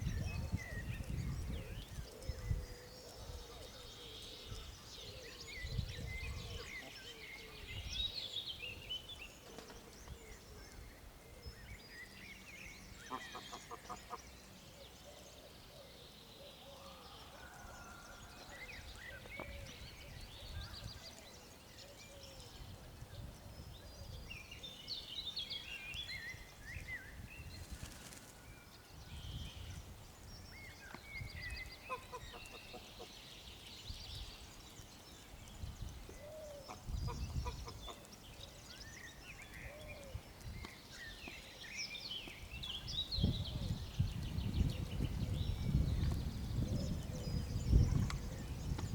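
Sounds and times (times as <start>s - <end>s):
small birds chirping: 18.8s - 48.9s
low wind rumble: 42.4s - 48.9s.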